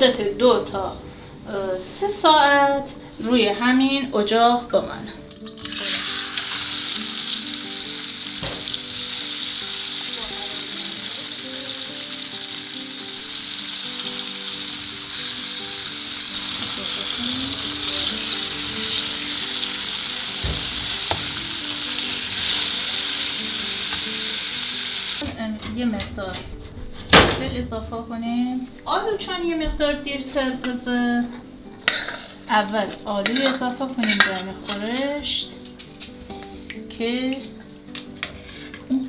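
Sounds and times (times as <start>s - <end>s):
fruit sizzling in oil: 5.5s - 25.2s.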